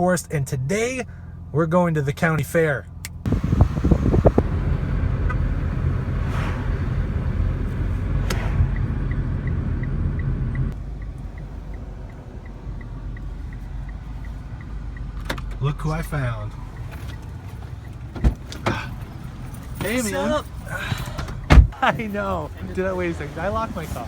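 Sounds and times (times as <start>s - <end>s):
car interior rumble: 0.0s - 24.0s
fast faint ticking: 7.1s - 23.7s.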